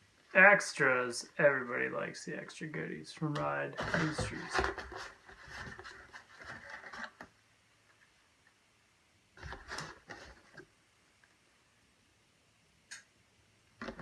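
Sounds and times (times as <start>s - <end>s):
packaging rustling and crinkling: 3.8s - 7.3s.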